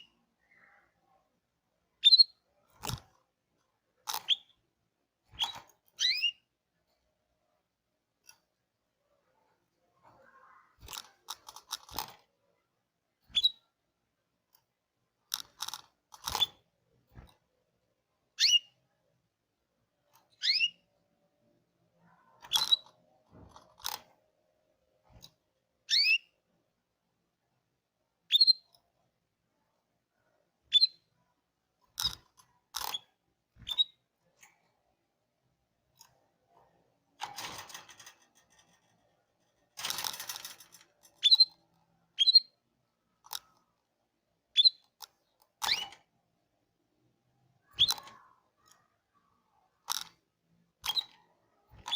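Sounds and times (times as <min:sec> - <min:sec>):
canary chirping: 0:00.0 - 0:01.0, 0:02.0 - 0:03.0, 0:04.0 - 0:04.6, 0:05.3 - 0:06.6, 0:13.3 - 0:13.8, 0:15.3 - 0:16.6, 0:18.3 - 0:18.8, 0:20.2 - 0:21.0, 0:22.1 - 0:23.0, 0:25.8 - 0:26.4, 0:28.3 - 0:28.8, 0:30.7 - 0:31.2, 0:32.0 - 0:34.2, 0:39.8 - 0:43.5, 0:44.5 - 0:46.1, 0:47.6 - 0:48.8, 0:50.8 - 0:51.9
clicks: 0:35.9 - 0:41.8.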